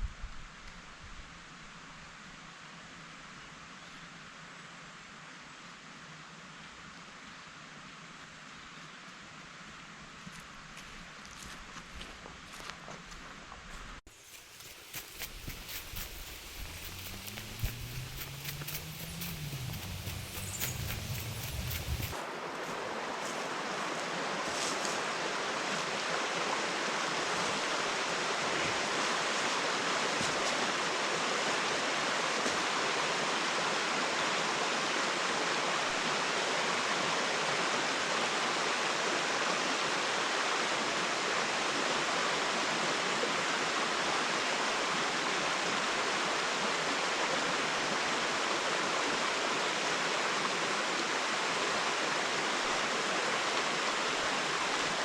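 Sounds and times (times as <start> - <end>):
rushing water: 14.1 - 55.0.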